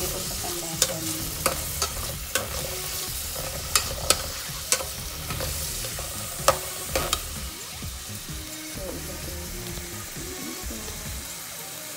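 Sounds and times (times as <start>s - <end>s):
vegetables sizzling in a pot: 0.0s - 11.9s
utensil clinking against pot: 0.8s - 7.3s.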